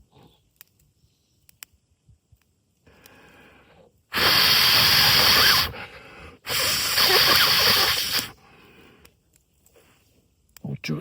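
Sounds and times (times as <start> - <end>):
person blowing hard: 4.1 - 5.8, 6.4 - 8.4.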